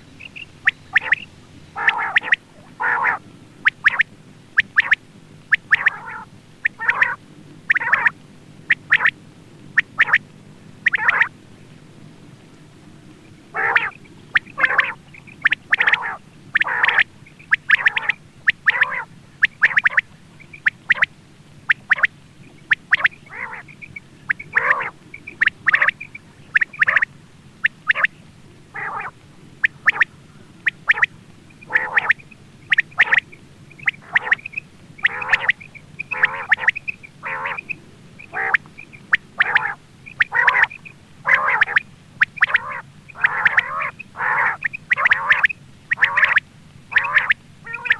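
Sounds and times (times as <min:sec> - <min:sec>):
quail calling: 0:00.0 - 0:09.2, 0:09.8 - 0:11.3, 0:13.5 - 0:47.9.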